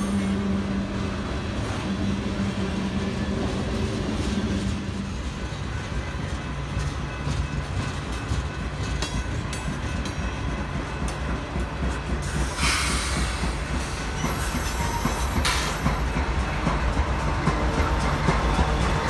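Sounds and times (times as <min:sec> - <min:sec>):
freight train rumbling past: 0:00.0 - 0:19.0
wheels clicking over rail joints: 0:04.2 - 0:19.0
loud high hiss from train: 0:12.2 - 0:15.8.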